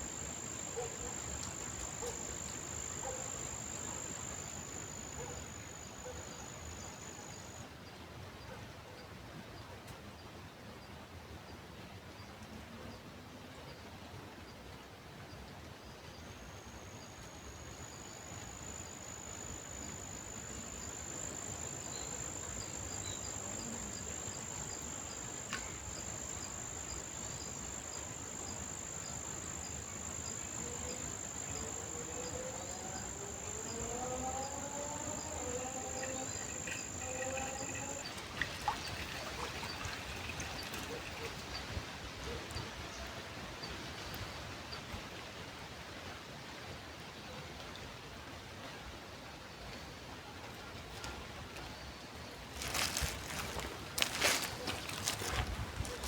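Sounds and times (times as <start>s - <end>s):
soft outdoor hiss: 0.0s - 56.0s
insect high-pitched trill: 16.6s - 41.3s.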